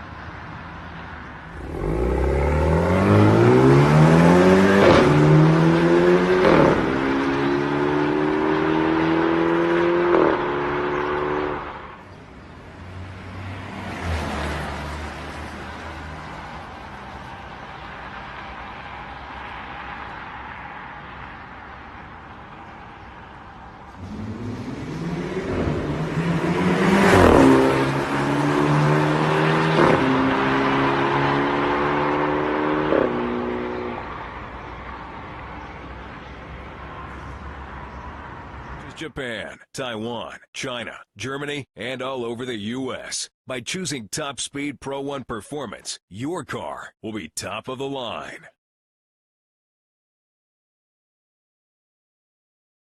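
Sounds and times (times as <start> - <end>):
car engine accelerating hard: 1.5 - 11.8, 23.9 - 34.2.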